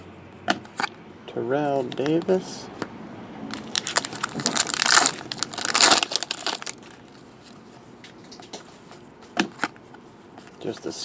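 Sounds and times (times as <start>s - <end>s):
wrapper crinkling: 3.5s - 7.6s.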